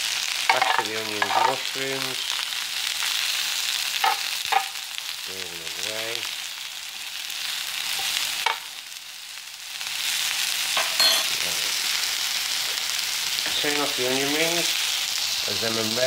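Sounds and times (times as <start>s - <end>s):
onions and mushrooms sizzling in oil: 0.0s - 16.0s
metal utensil scraping a pan: 0.5s - 1.6s.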